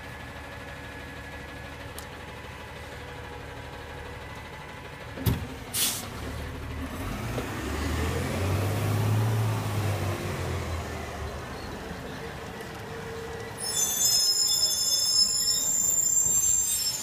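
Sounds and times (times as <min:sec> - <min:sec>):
garbage truck diesel engine: 0:00.0 - 0:17.0
air brake release hiss: 0:05.7 - 0:06.1.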